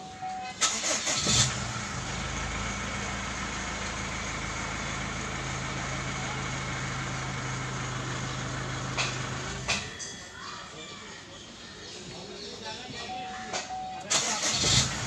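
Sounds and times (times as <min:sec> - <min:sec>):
car engine idling: 0:00.6 - 0:10.0, 0:14.1 - 0:15.0.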